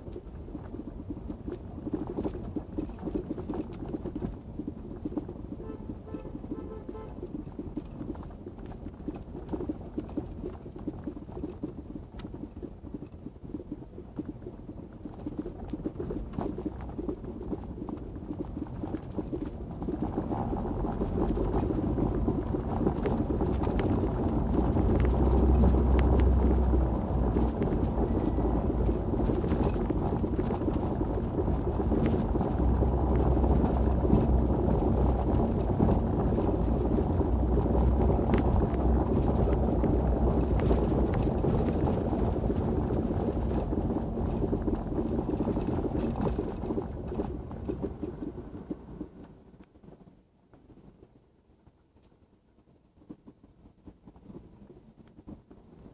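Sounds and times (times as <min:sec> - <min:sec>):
low tyre rumble: 0:00.0 - 0:49.9
suspension knocking: 0:20.8 - 0:46.5.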